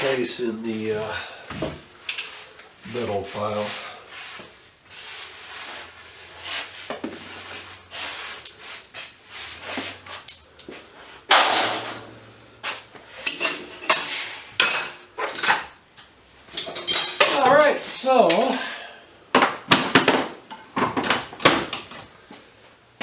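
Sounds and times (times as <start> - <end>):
metal clatter: 11.3 - 12.1, 13.2 - 15.7
scrap metal knocks and scrapes: 11.3 - 15.8
ringing metallic clinks: 13.2 - 15.1.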